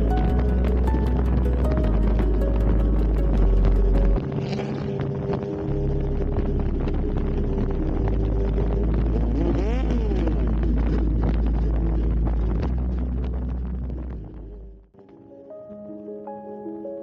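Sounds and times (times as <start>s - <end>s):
wind buffeting microphone: 0.0s - 14.7s
motorcycle engine running: 5.7s - 14.7s.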